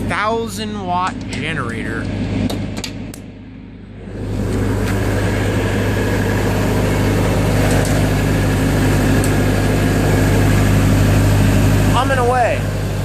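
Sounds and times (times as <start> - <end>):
generator humming: 0.0 - 13.0.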